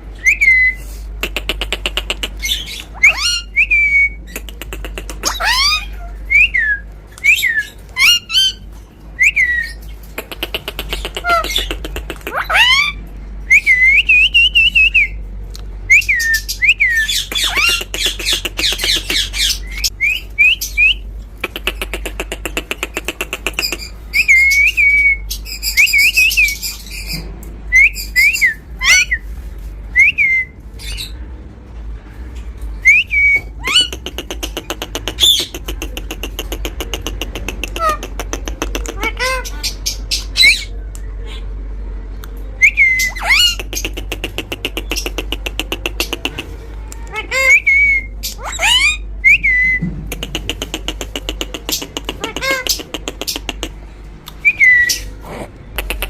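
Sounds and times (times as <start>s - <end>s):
parrot harsh squawks: 2.0s - 3.6s, 5.1s - 6.2s, 10.9s - 13.0s, 16.9s - 19.9s, 38.8s - 40.7s, 42.9s - 45.2s, 47.0s - 49.0s, 52.0s - 53.5s
parrot whistled chirps: 2.9s - 4.2s, 9.2s - 9.8s, 42.6s - 43.6s, 47.2s - 49.8s, 54.4s - 55.1s.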